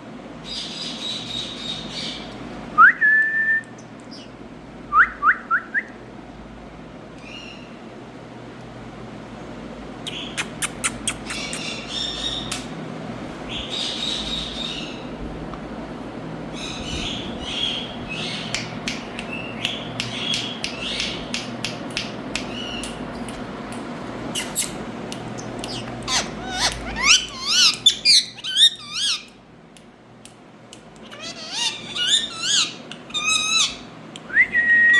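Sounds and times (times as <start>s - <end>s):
parrot clicks and squawks: 10.1s - 11.9s, 24.3s - 29.4s, 30.8s - 33.8s
parrot screeching: 25.7s - 29.3s, 31.0s - 33.9s.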